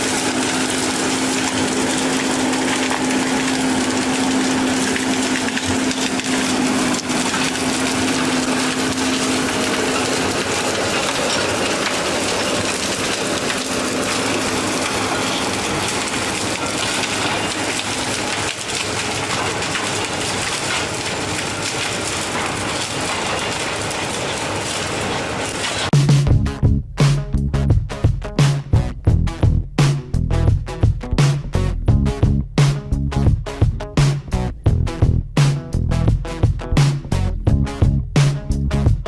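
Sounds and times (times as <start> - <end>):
wood being ground: 0.0 - 26.0
engine drone: 0.0 - 39.0.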